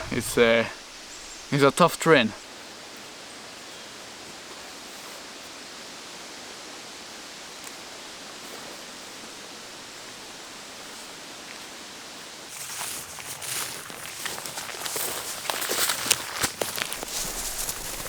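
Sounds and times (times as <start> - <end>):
steady outdoor rushing noise: 0.0 - 2.4
footsteps crunching through undergrowth: 12.5 - 18.0.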